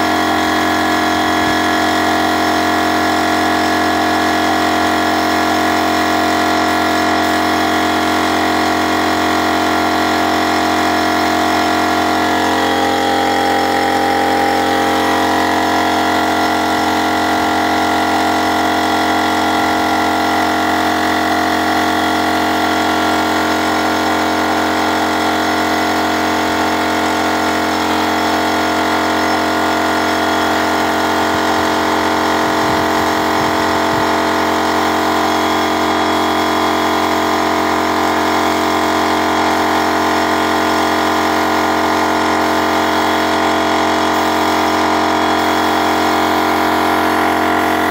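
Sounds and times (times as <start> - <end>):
car engine droning: 25.3 - 47.9.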